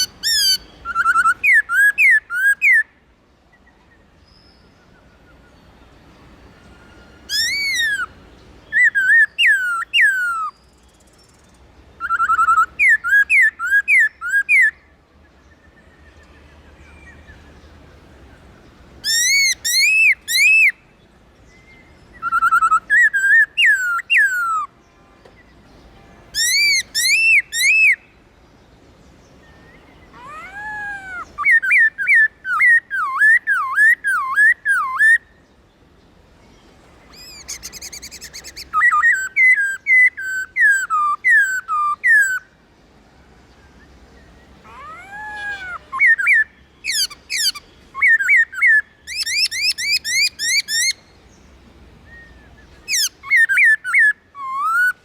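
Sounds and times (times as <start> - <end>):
bird singing whistled phrases: 0.0 - 3.0, 6.7 - 11.4, 12.0 - 14.9, 19.0 - 20.8, 21.6 - 24.7, 26.4 - 28.1, 29.5 - 35.4, 37.1 - 42.5, 44.7 - 51.2, 52.0 - 55.0.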